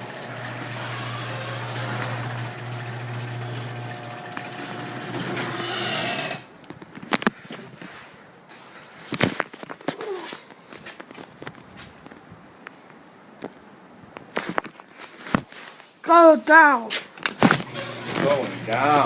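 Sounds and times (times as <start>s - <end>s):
garage door opener motor humming: 0.0s - 6.5s, 17.6s - 19.0s.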